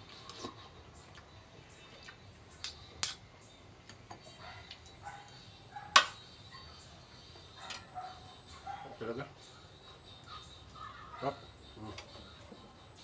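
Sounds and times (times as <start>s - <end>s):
utensils clinking against a dish: 2.6s - 3.2s, 5.8s - 6.3s.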